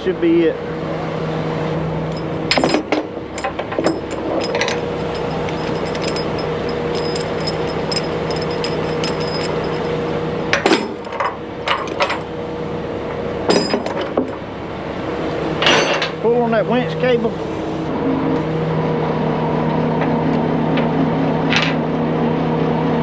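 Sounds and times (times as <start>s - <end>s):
engine running: 0.0s - 23.0s
metal clanks and knocks: 2.1s - 12.3s, 13.5s - 14.4s, 15.6s - 16.2s.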